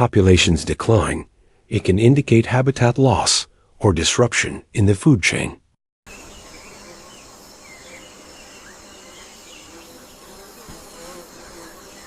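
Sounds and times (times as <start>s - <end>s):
insects humming: 6.1s - 12.0s.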